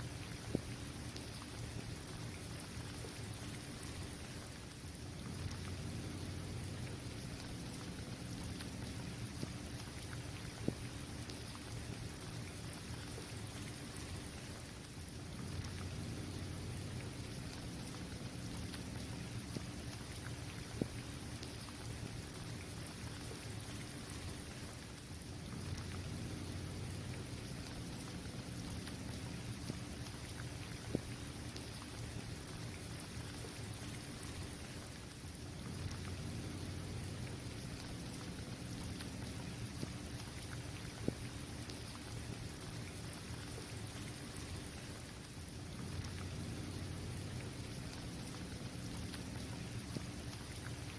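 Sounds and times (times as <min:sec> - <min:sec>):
low steady rumble: 0:00.0 - 0:14.4, 0:15.0 - 0:50.9
raindrops ticking: 0:00.0 - 0:50.9
steady rain hiss: 0:00.0 - 0:50.9
rain drop taps: 0:07.4 - 0:11.6.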